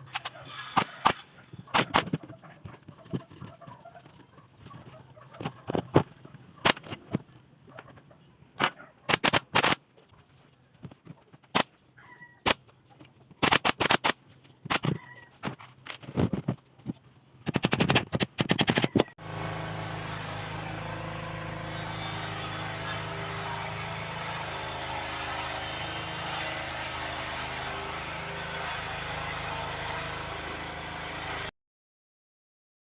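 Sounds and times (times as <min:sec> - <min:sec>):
power tool motor running: 0:19.2 - 0:31.5.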